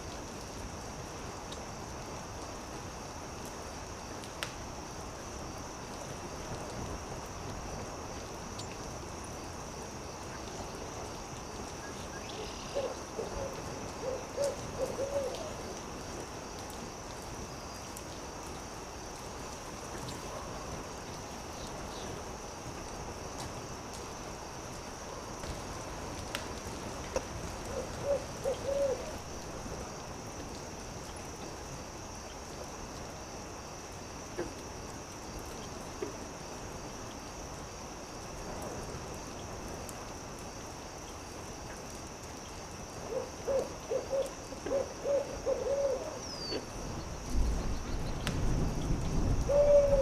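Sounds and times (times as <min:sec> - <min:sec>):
campfire crackling: 0:00.0 - 0:45.5, 0:46.2 - 0:49.6
steady high hiss: 0:00.0 - 0:50.0
owl hooting: 0:12.7 - 0:15.6, 0:27.7 - 0:29.2, 0:43.1 - 0:46.7, 0:49.5 - 0:50.0.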